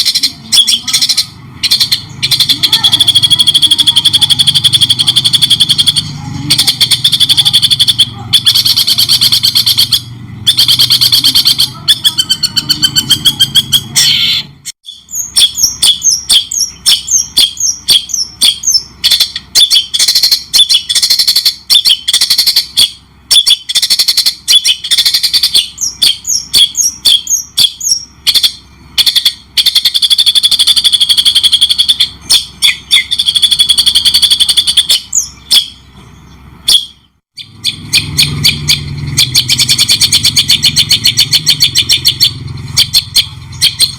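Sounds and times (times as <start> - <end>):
songbird chattering and trilling: 0.0 - 43.9.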